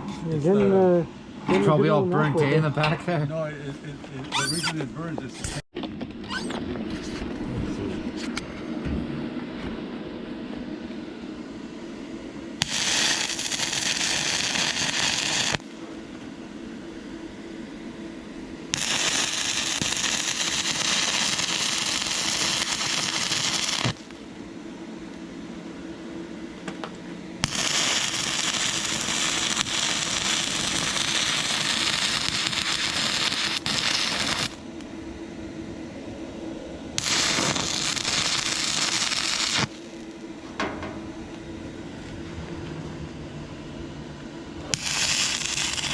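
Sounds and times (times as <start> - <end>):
steady low hum: 0.0 - 45.9
welding arc crackling hiss: 12.6 - 15.7, 18.7 - 24.3, 27.4 - 34.6, 37.0 - 40.2, 44.7 - 45.9.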